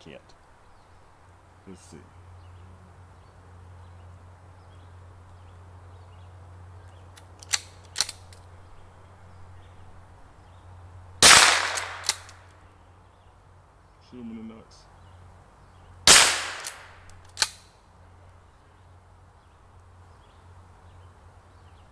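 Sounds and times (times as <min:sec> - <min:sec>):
sharp clicks: 0:06.8 - 0:08.5, 0:11.2 - 0:12.6, 0:16.1 - 0:17.7
rifle shot with echo: 0:11.2 - 0:12.3, 0:16.1 - 0:17.6.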